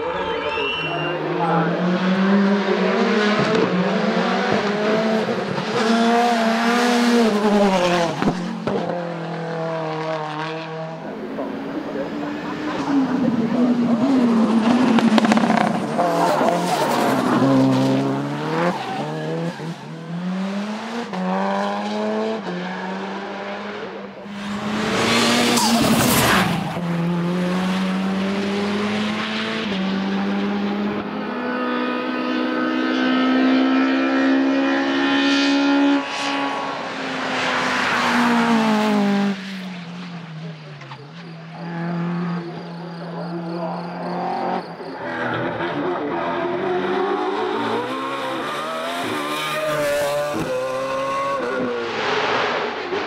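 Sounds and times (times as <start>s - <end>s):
racing car engines at full throttle: 0.0s - 53.0s.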